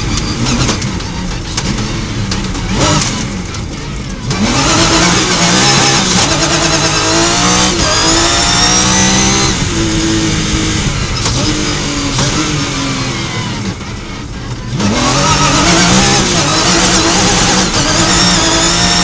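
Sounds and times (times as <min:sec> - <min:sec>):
rally car engine at full throttle: 0:00.0 - 0:19.0.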